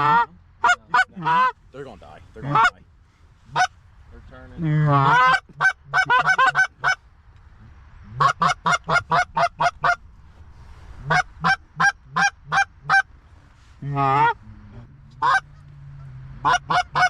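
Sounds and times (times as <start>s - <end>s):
goose honking: 0.0s - 1.6s, 2.4s - 2.8s, 3.4s - 3.8s, 4.6s - 7.0s, 8.1s - 10.0s, 11.0s - 13.1s, 13.8s - 17.0s.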